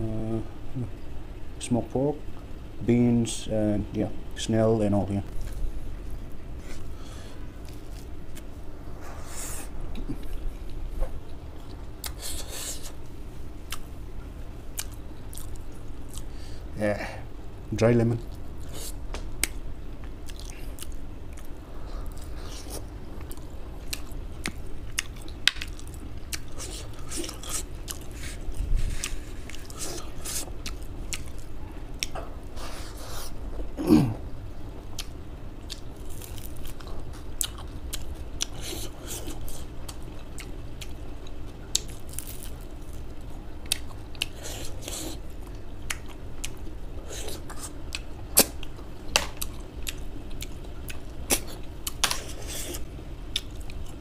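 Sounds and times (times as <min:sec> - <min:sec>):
chewing and biting: 0:20.2 - 0:32.2
crisp crunches of food: 0:35.8 - 0:40.0, 0:41.7 - 0:43.1.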